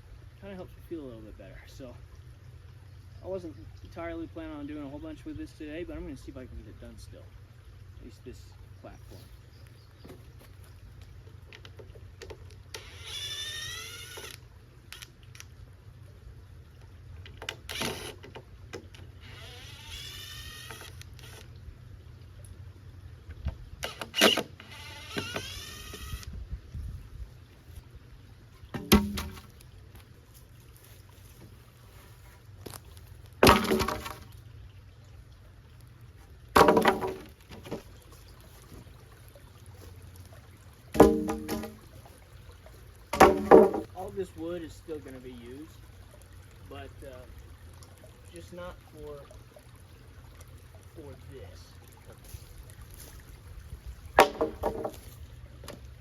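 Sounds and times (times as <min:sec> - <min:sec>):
nails squealing out of wood: 0:12.7 - 0:14.4, 0:17.4 - 0:21.5, 0:23.8 - 0:26.3
knocks of wood and tools: 0:28.7 - 0:29.6, 0:33.4 - 0:34.3, 0:36.5 - 0:37.9, 0:40.9 - 0:41.8, 0:43.1 - 0:43.9, 0:54.2 - 0:55.8
wooden boards clattering: 0:28.7 - 0:29.6, 0:33.4 - 0:34.3, 0:36.5 - 0:37.9, 0:40.9 - 0:41.8, 0:43.1 - 0:43.9, 0:54.2 - 0:55.8.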